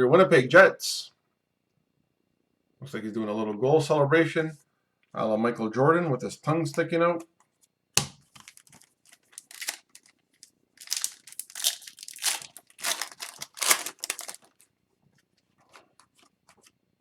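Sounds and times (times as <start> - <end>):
foil wrapper crinkling and tearing: 8.3 - 14.8.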